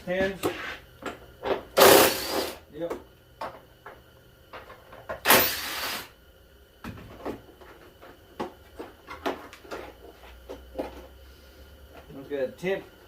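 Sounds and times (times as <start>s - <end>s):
hand tool rasping burst: 1.8s - 2.6s.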